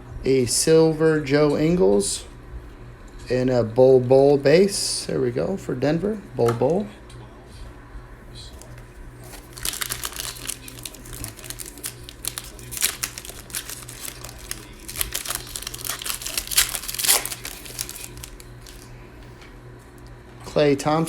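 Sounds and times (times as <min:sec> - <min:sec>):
plastic wrapper tearing and crinkling: 0:08.6 - 0:18.9.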